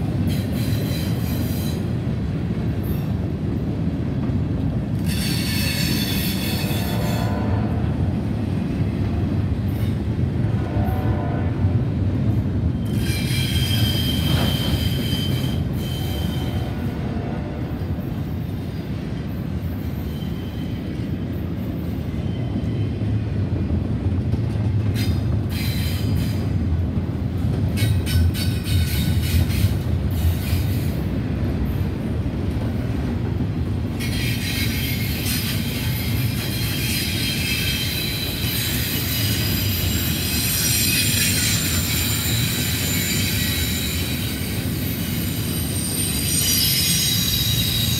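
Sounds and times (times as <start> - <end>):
freight train wheels rumbling: 0.0 - 47.9
metallic wheel squealing: 12.9 - 16.7, 34.0 - 47.9.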